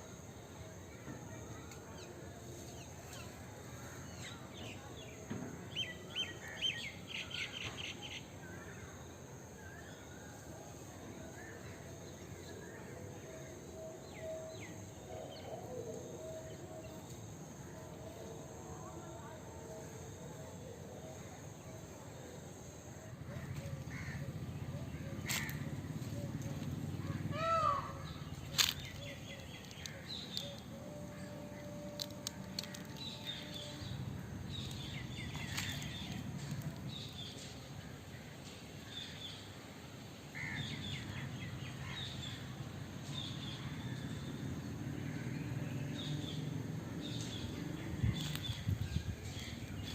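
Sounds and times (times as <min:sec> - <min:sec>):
outdoor background noise: 0:00.0 - 0:49.9
high insect drone: 0:08.4 - 0:37.6
birds chirping: 0:23.3 - 0:37.5, 0:45.2 - 0:49.9.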